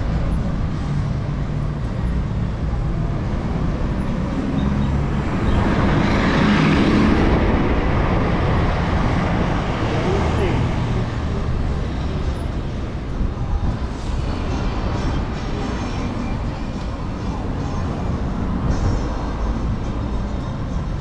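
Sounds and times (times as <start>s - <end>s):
city street traffic: 0.0s - 21.0s
low wind rumble on microphone: 5.2s - 15.6s.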